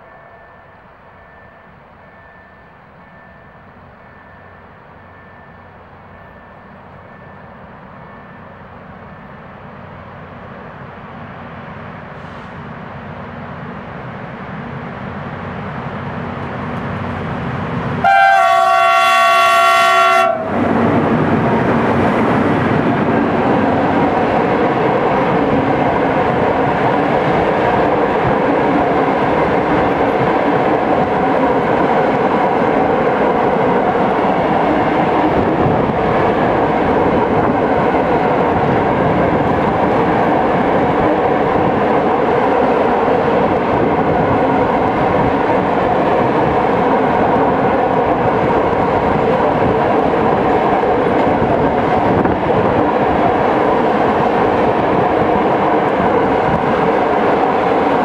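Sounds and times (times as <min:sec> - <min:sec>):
diesel locomotive engine: 0:00.0 - 0:58.0
wheels rumbling on rails: 0:00.0 - 0:58.0
locomotive horn blast: 0:18.0 - 0:20.7.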